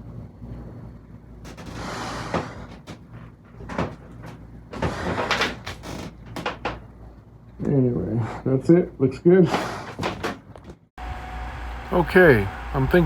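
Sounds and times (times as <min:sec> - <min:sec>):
low steady hum: 0:11.0 - 0:13.0.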